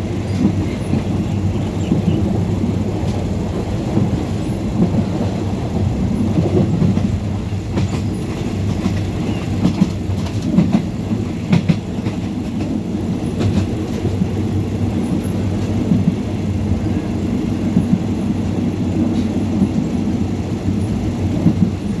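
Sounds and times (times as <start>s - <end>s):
train rumbling on rails: 0.0s - 22.0s
wheels clicking and knocking: 6.2s - 16.6s.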